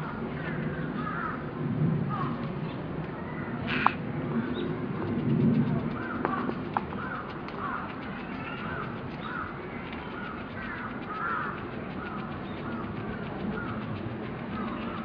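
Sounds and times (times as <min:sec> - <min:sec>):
bird calling: 0:03.6 - 0:04.6, 0:05.8 - 0:15.0.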